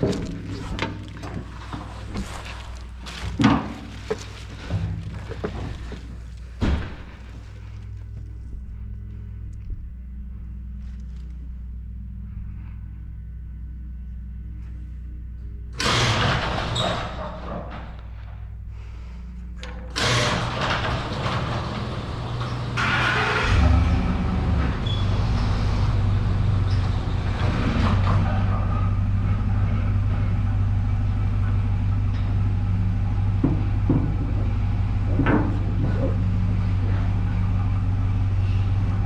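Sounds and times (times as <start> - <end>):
vehicle engine running under load: 18.9 - 39.0.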